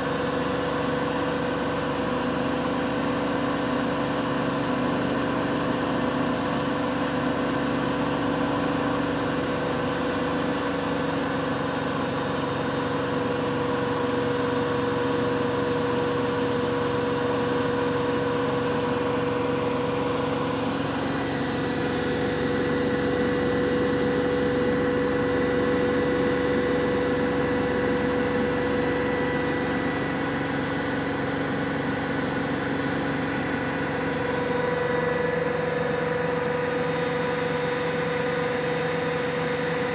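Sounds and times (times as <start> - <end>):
washing machine spinning: 9.2 - 39.9.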